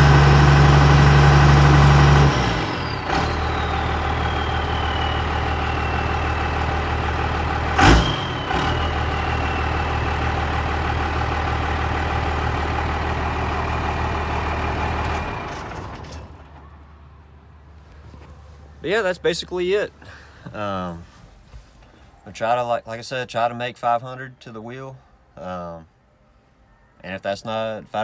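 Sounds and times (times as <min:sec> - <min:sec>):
diesel engine idling: 0:00.0 - 0:20.6.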